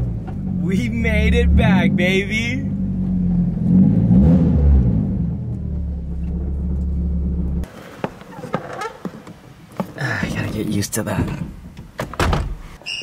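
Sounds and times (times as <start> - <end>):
car engine revving and idling: 0.0 - 7.7.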